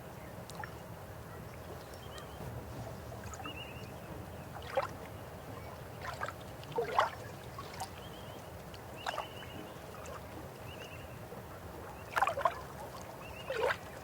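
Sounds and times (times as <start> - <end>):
river water running: 0.0 - 14.0
water gurgles and splashes: 5.9 - 10.7, 11.8 - 14.0.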